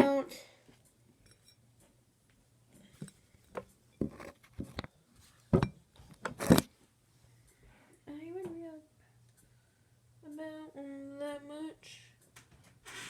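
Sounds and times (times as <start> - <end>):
plastic bottle and bowl knocking: 4.0 - 4.7.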